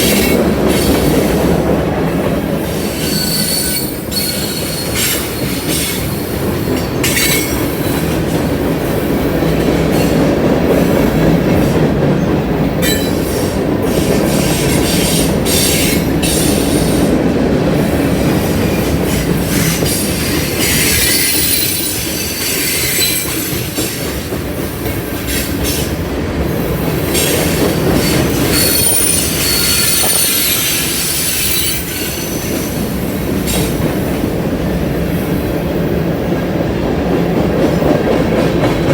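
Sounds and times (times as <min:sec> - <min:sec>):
train wheels rumbling on rails: 0:00.0 - 0:38.9
high wheel squeal: 0:02.8 - 0:06.0, 0:20.6 - 0:23.4, 0:28.0 - 0:32.7.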